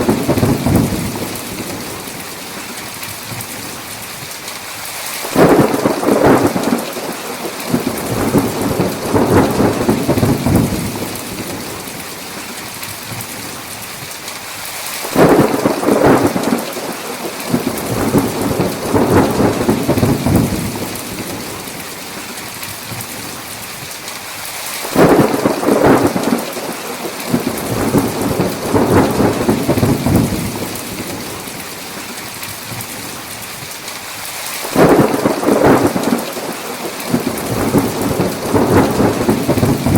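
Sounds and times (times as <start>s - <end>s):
thunder rolling: 0.0s - 2.0s, 5.3s - 12.0s, 15.1s - 21.6s, 24.9s - 31.4s, 34.6s - 39.9s
heavy rain: 0.0s - 39.9s.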